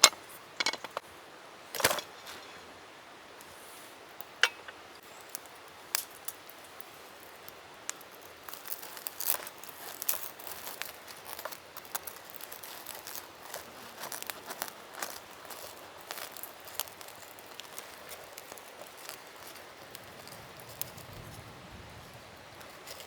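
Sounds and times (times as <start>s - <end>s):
packaging crinkling: 8.3s - 20.0s.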